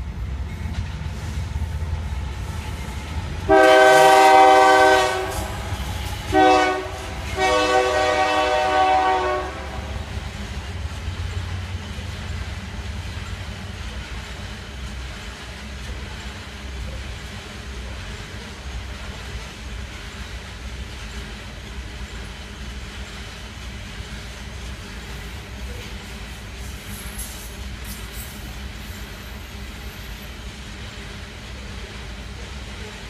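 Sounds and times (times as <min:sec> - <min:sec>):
passing train rumble: 0:00.0 - 0:33.0
locomotive air horn blasts: 0:03.5 - 0:10.0.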